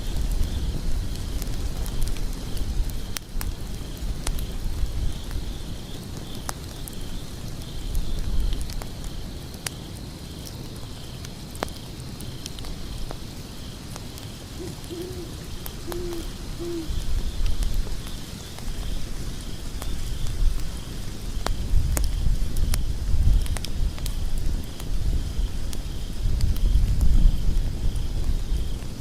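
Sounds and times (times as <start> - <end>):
wood fire crackling: 0.0 - 29.0
owl hooting: 14.6 - 17.0.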